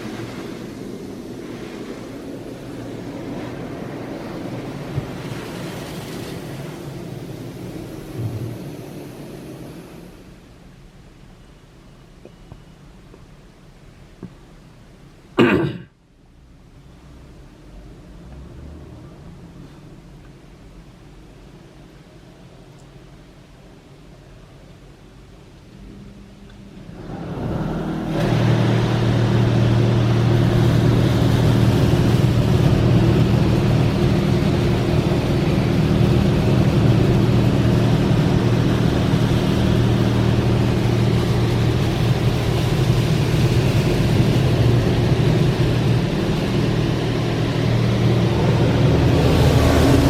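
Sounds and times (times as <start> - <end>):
hiss of water spray: 0.0 - 10.4
loud pump hum: 0.0 - 10.5, 26.8 - 50.0.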